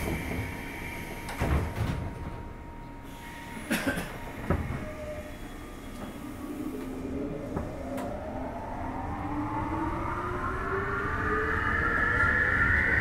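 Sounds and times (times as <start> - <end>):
train doors closing thuds: 1.2 - 2.5, 3.8 - 5.2.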